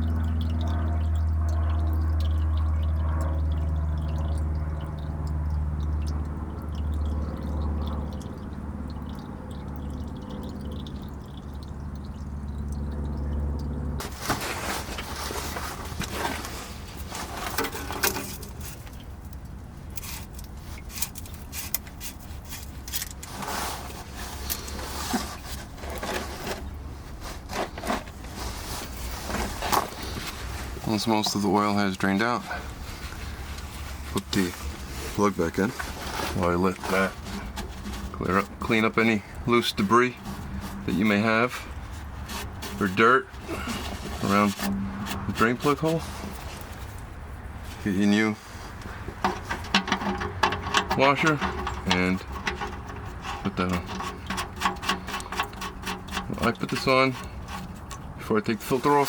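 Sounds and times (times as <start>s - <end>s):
low ringing hum: 0.0s - 58.9s
oil pouring into drain pan: 0.0s - 59.0s
clicks and knocks: 49.1s - 56.4s.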